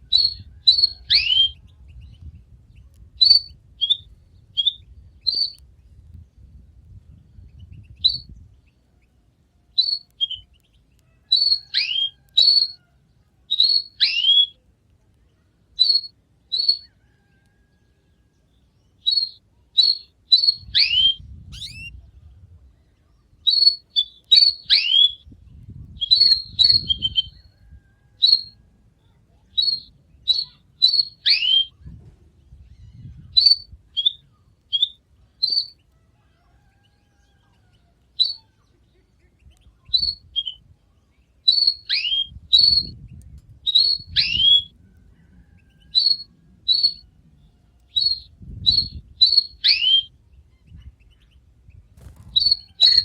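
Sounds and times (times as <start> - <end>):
canary chirping: 0.1 - 1.6, 3.2 - 5.6, 7.7 - 8.3, 9.8 - 12.8, 13.5 - 14.6, 15.8 - 16.9, 19.0 - 21.9, 23.4 - 25.2, 26.0 - 27.4, 28.2 - 28.6, 29.5 - 31.8, 32.7 - 35.8, 38.2 - 38.5, 41.4 - 42.9, 43.7 - 44.7, 45.5 - 47.0, 47.8 - 51.3, 52.0 - 53.0.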